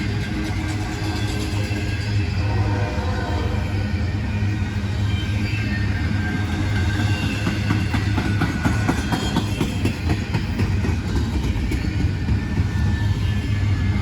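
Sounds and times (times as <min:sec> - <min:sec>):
freight train rumbling: 0:00.0 - 0:14.0
train wheels clicking over rail joints: 0:06.3 - 0:14.0.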